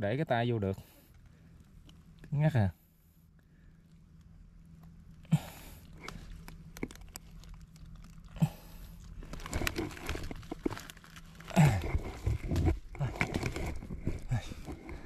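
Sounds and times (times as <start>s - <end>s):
digging in wet mud and leaves: 5.2s - 15.0s.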